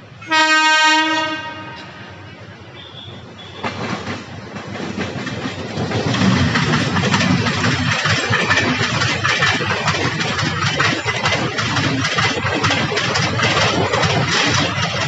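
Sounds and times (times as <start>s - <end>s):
low train running rumble: 0.0s - 15.0s
train wheels clattering over joints: 3.6s - 15.0s.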